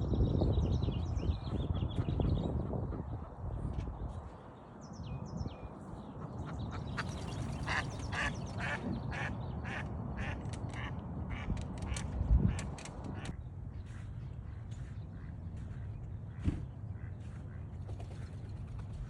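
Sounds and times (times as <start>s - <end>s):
ducks quacking: 6.2s - 18.4s
steady low rumble: 6.4s - 19.0s
low thump: 16.4s - 16.7s.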